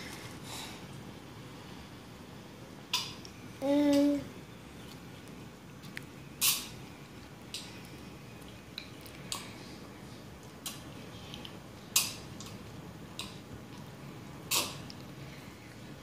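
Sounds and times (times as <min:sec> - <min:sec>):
toddler chewing and smacking: 0:04.8 - 0:15.2.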